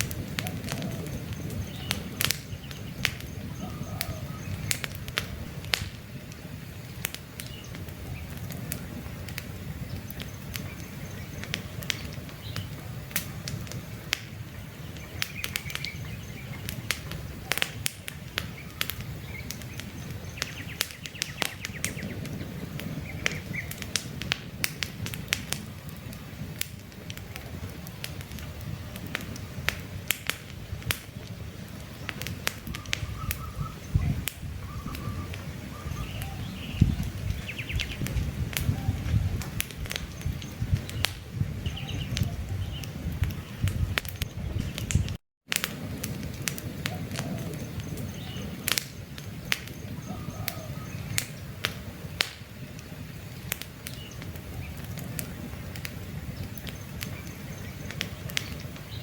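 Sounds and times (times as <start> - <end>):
campfire crackling and popping: 0.0 - 59.0
bird chirping: 0.4 - 5.0, 14.3 - 23.8, 32.0 - 39.4, 40.0 - 45.2, 46.9 - 51.4.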